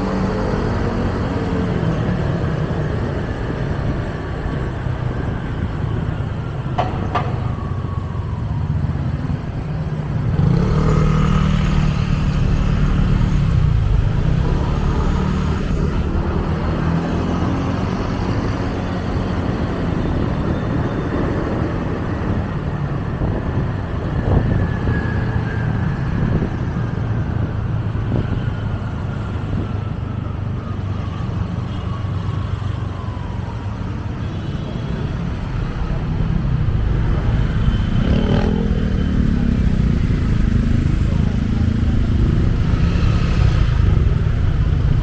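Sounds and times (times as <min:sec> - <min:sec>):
motorcycle engine rumble: 0:00.0 - 0:16.5, 0:35.3 - 0:45.0.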